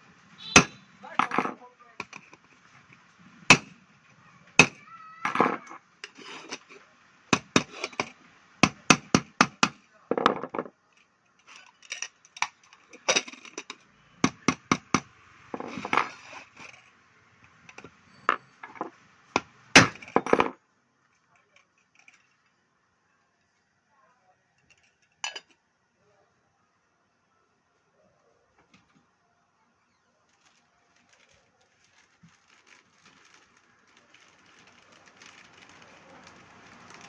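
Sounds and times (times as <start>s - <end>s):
metal scraping: 6.0s - 6.8s, 7.5s - 8.2s, 15.5s - 16.9s.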